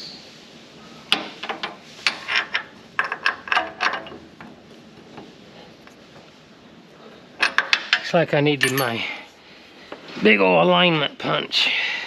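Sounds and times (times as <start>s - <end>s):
metal hand tools clinking: 8.6s - 9.2s.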